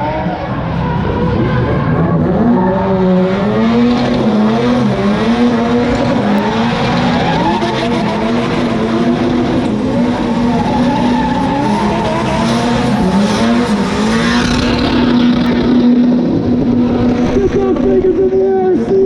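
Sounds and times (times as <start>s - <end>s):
car engine revving high: 0.0s - 19.0s
tyres squealing on pavement: 6.2s - 8.4s, 10.0s - 15.2s.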